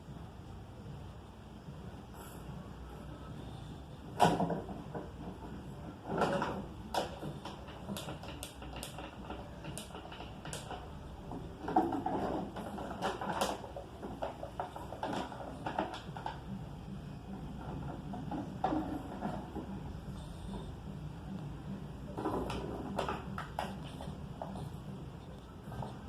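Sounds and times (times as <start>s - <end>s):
dog snoring: 18.5s - 21.5s, 22.1s - 26.0s.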